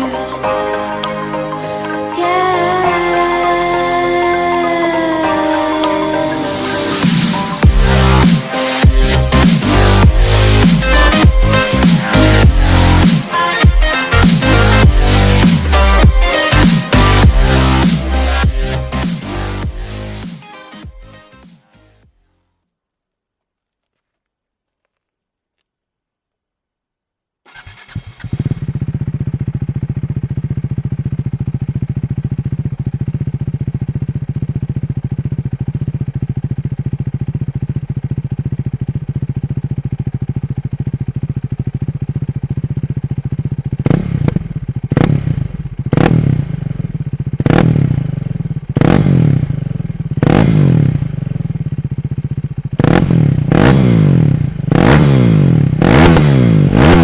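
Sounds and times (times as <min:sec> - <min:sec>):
motorcycle engine idling and revving: 0:02.1 - 0:20.4, 0:27.5 - 0:57.0.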